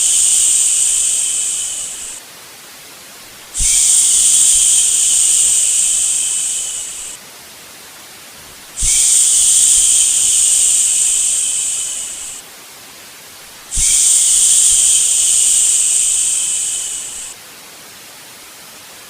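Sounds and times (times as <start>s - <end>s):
person shushing: 0.0s - 2.2s, 3.6s - 7.2s, 8.8s - 12.4s, 13.7s - 17.4s
faint steady hiss: 0.0s - 19.0s.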